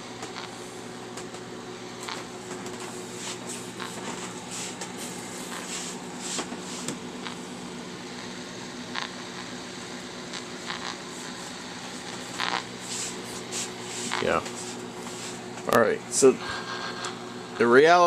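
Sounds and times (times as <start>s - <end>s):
radio hissing with interference buzz: 0.0s - 17.6s
microwave oven humming: 0.0s - 18.0s
radio crackles: 0.1s - 0.6s, 2.0s - 14.9s.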